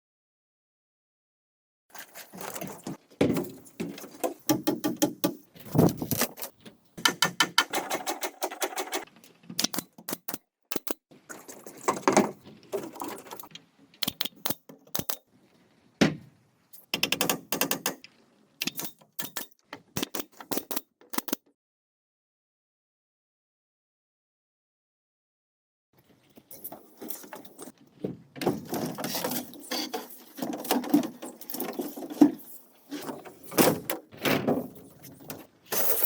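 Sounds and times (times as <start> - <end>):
mechanical clicking and knocking: 3.8 - 5.5, 7.0 - 11.0, 12.0 - 15.2, 16.8 - 21.5.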